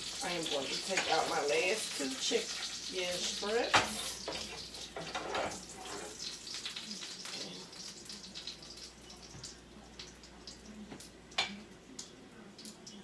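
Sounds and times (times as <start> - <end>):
oil sizzling in frying pan: 0.0 - 13.0.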